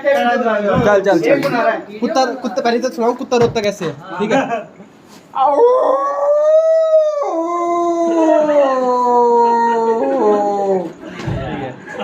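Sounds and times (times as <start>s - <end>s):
man imitating dog howling: 5.4s - 10.9s.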